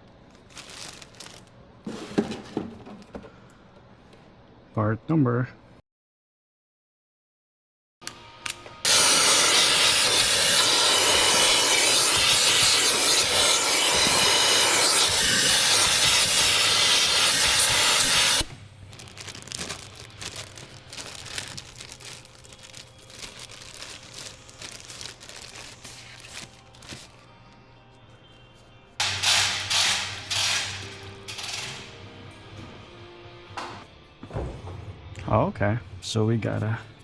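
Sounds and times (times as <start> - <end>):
loud steady hiss: 8.9 - 18.5.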